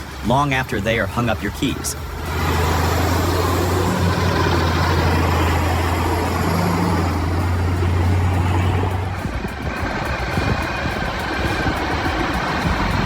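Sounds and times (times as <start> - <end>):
heavy vehicle engine running: 0.0 - 13.0.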